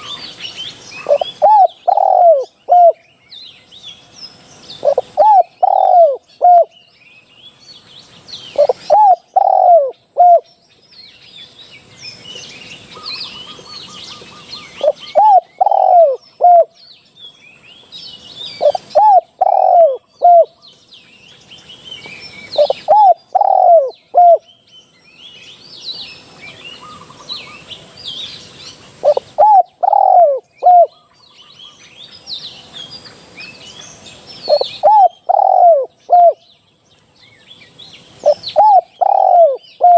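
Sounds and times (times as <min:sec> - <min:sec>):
small birds chirping faintly: 0:00.0 - 0:39.9
dove cooing: 0:00.9 - 0:03.0, 0:04.8 - 0:06.7, 0:08.5 - 0:10.5, 0:13.0 - 0:16.8, 0:18.5 - 0:20.6, 0:22.5 - 0:24.4, 0:29.0 - 0:31.1, 0:34.5 - 0:36.4, 0:38.2 - 0:39.9.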